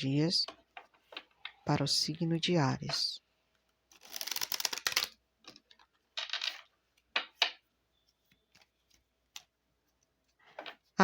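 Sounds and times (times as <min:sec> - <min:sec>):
cards being shuffled: 0:03.9 - 0:05.2.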